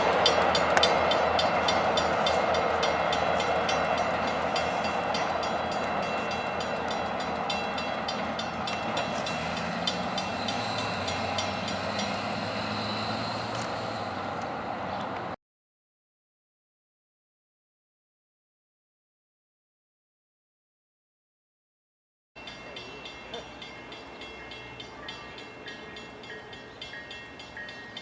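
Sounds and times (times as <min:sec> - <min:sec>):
train wheels clicking over rail joints: 0:00.0 - 0:15.3
train rumble: 0:00.0 - 0:15.4, 0:22.4 - 0:28.0.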